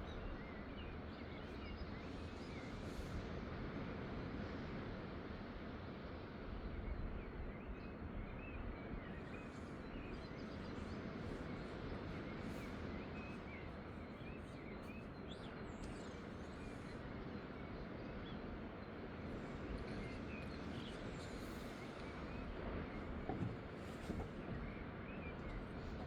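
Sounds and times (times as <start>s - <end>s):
outdoor background rumble: 10.1s - 26.0s.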